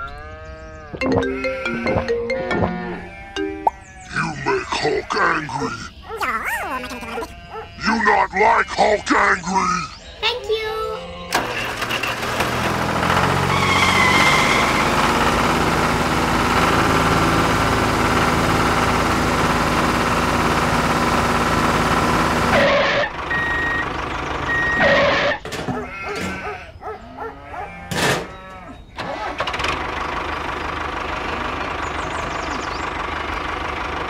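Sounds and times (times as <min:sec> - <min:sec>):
small engine running: 0:11.3 - 0:25.4, 0:29.0 - 0:34.0.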